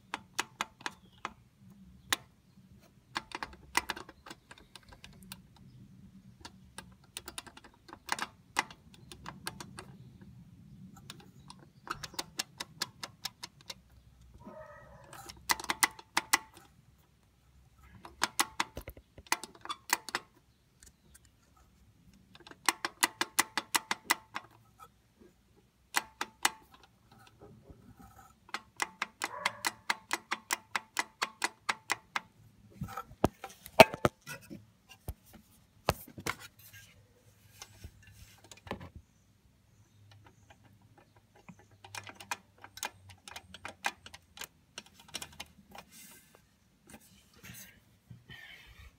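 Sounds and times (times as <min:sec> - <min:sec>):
wastegate metallic rattling clicks: 0:28.7 - 0:32.3.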